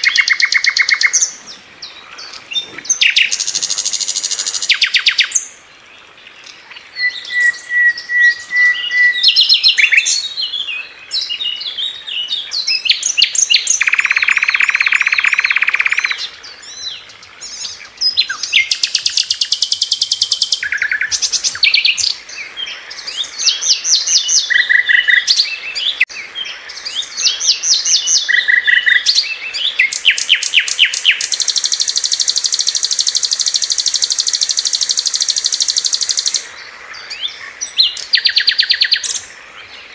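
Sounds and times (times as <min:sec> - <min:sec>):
flycatcher singing: 0:00.0 - 0:05.5, 0:12.4 - 0:36.5, 0:37.1 - 0:39.3.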